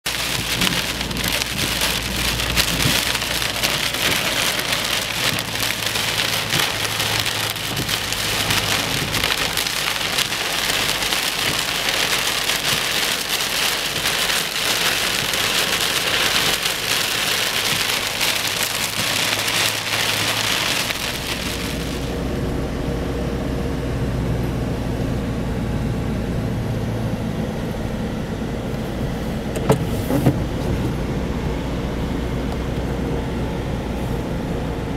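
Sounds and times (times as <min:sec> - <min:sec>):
heavy rain pouring: 0:00.0 - 0:22.4
low vehicle engine hum: 0:00.0 - 0:34.9.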